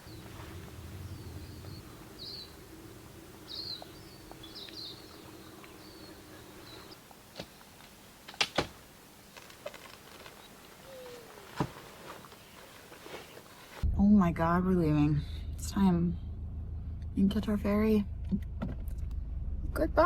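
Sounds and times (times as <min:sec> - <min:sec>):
small birds chirping: 0:00.0 - 0:07.8, 0:10.2 - 0:13.7
faint steady hum: 0:00.0 - 0:20.0.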